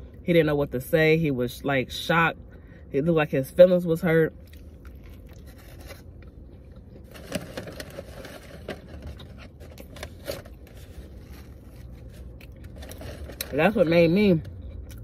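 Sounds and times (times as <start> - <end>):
person biting and chewing: 4.4 - 8.2
paper wrapper crinkling: 7.0 - 13.9.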